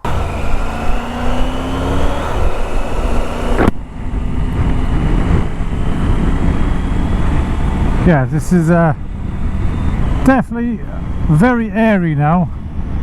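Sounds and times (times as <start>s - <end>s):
wind noise on microphone: 0.0s - 8.1s
motorcycle engine accelerating: 0.0s - 13.0s.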